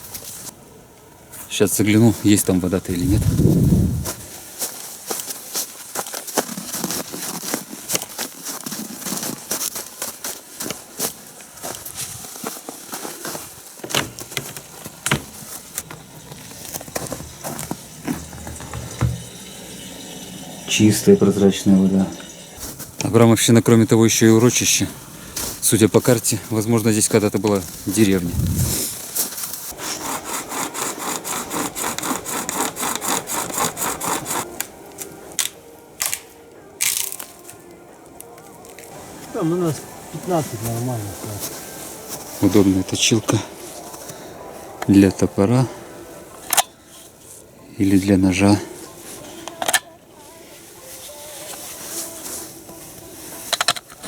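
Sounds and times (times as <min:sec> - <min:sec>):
footsteps crunching in snow: 0:00.0 - 0:00.6, 0:01.3 - 0:47.6, 0:50.2 - 0:53.5
knocks and rustles: 0:11.8 - 0:19.8
hand saw cutting wood: 0:14.8 - 0:19.6, 0:29.8 - 0:34.7.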